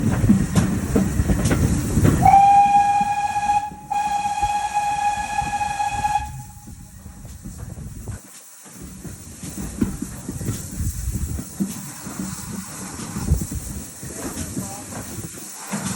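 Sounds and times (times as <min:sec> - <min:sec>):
locomotive rumble with clattering: 0:00.0 - 0:08.2, 0:08.8 - 0:15.9
steam whistle blasts: 0:02.2 - 0:06.8.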